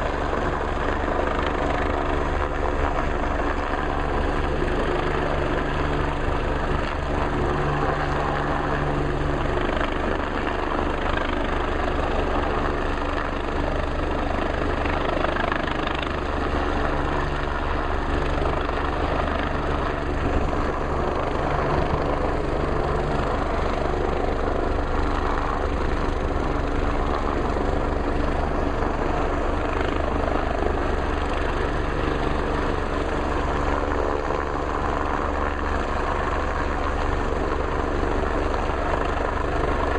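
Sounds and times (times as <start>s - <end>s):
helicopter rotor and turbine hovering: 0.0s - 39.9s.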